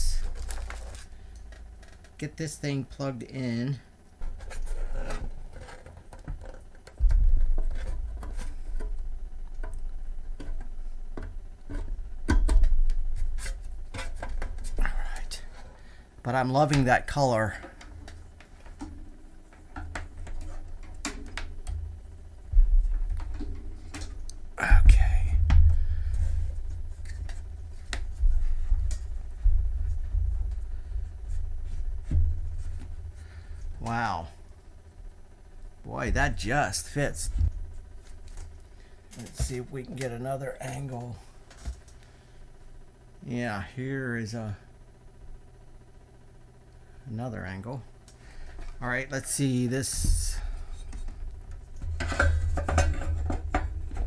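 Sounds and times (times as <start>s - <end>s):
low uneven handling rumble: 4.1s - 40.9s.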